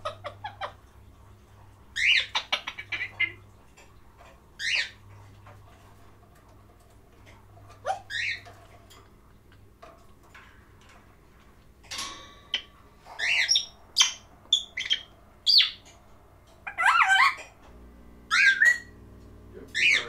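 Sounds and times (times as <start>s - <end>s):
parrot whistling and squawking: 2.0s - 3.4s, 4.6s - 5.0s, 7.8s - 8.5s, 12.6s - 15.8s, 16.6s - 17.5s, 18.3s - 18.9s, 19.7s - 20.0s.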